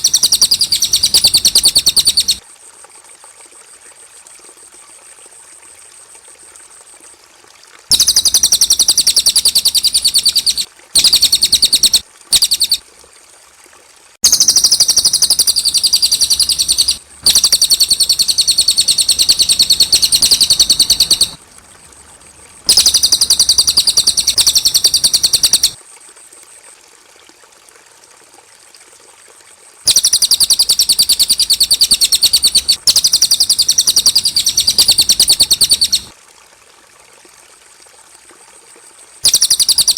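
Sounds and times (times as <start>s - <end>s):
bird singing high-pitched trills: 0.0s - 2.4s, 7.9s - 12.8s, 14.2s - 21.4s, 22.7s - 25.8s, 29.9s - 36.1s, 39.3s - 39.9s.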